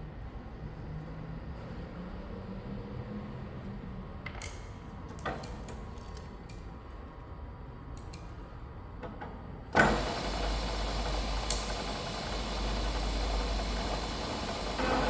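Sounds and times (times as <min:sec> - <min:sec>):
electric motor humming: 0:09.8 - 0:15.0.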